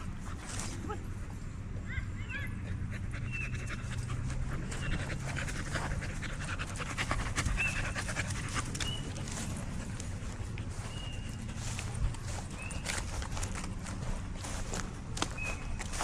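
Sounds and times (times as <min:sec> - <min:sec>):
dog panting: 0:02.6 - 0:13.7.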